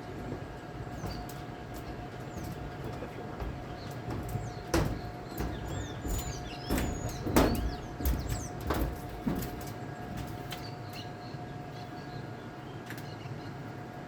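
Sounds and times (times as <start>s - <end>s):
dull thumps: 0.1s - 10.5s
small birds chirping: 0.5s - 13.6s.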